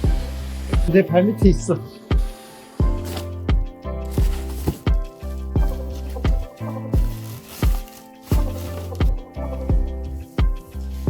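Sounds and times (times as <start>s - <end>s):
kick drum beat: 0.0s - 10.7s
held bass notes: 8.3s - 11.0s.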